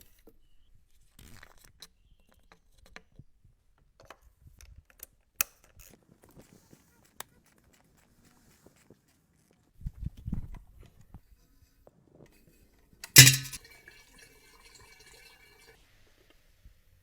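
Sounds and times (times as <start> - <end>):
ringing metallic clank: 13.1 - 13.6.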